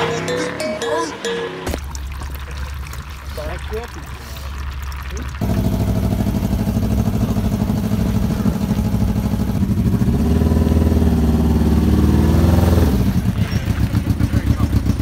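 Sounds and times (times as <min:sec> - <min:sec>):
engine idling and revving: 0:05.4 - 0:15.0.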